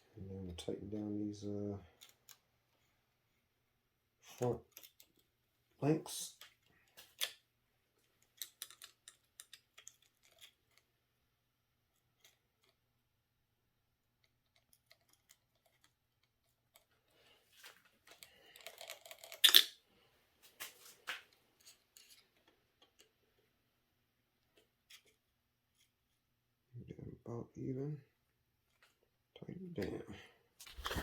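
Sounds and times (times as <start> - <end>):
small tools clicking and rattling: 8.1 - 10.8, 18.0 - 19.8
rustling: 30.6 - 31.0.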